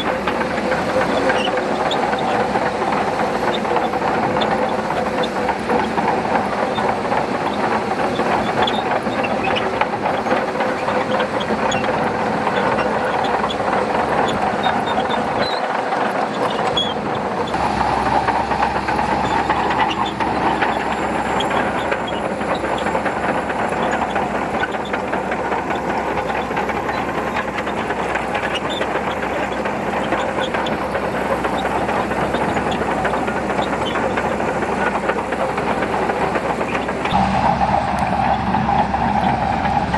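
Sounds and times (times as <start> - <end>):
bulldozer diesel engine running: 0.0 - 39.9
steel tracks clanking: 0.0 - 39.9.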